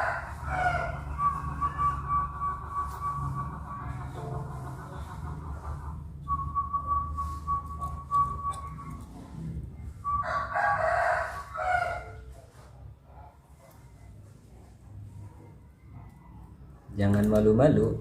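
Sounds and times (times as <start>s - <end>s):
rooster crowing: 0.0s - 2.3s, 10.0s - 12.3s
low hum: 0.0s - 10.5s.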